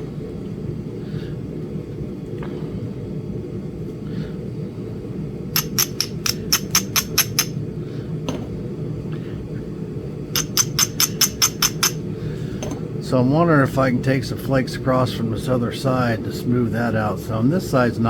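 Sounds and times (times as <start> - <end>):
stone tool tapping clicks: 5.6 - 7.6, 10.4 - 12.0.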